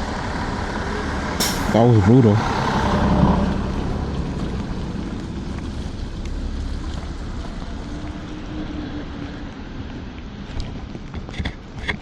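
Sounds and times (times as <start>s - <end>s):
wind: 0.0s - 12.0s
tyre hiss on wet road: 1.4s - 2.0s.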